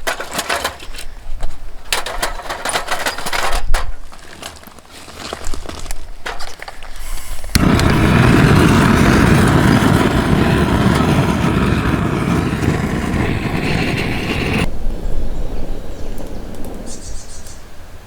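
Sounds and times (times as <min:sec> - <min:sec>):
loud steady rushing noise: 0:07.6 - 0:15.1.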